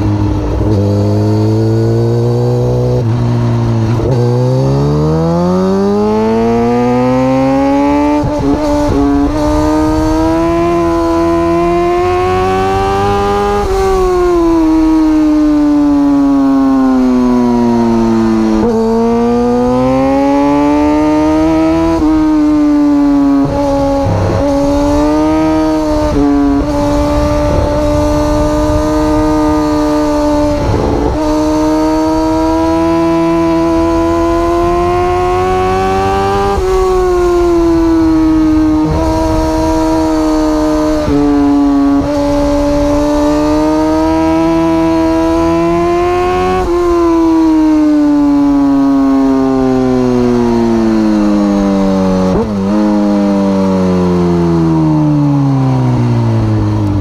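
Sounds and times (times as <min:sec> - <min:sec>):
motorcycle engine at high revs: 0:00.0 - 0:57.0
wind rush on microphone: 0:07.9 - 0:16.2, 0:21.9 - 0:48.0.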